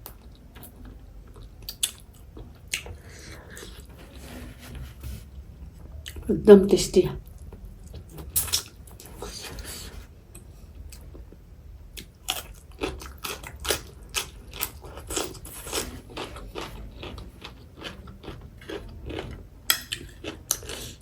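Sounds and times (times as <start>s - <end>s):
crispy chicken crunching: 12.0s - 21.0s
wet chewing: 12.0s - 21.0s.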